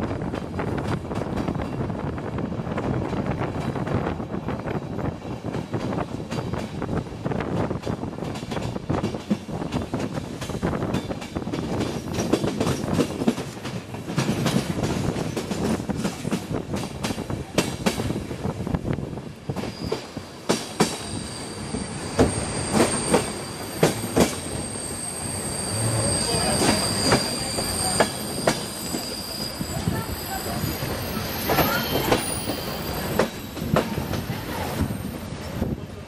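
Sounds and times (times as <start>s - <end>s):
train rumbling on rails: 0.0s - 36.0s
high wheel squeal: 19.7s - 20.2s, 21.0s - 35.2s.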